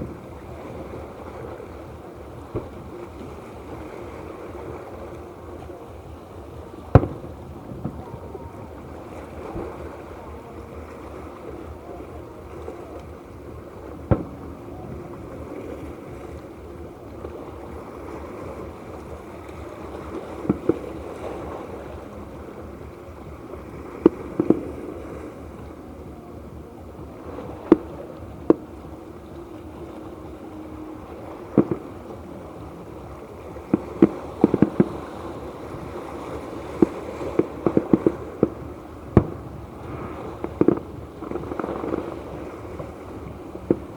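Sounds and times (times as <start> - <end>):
fireworks bangs: 6.6 - 10.0, 14.0 - 15.0, 30.5 - 32.7, 33.6 - 43.9.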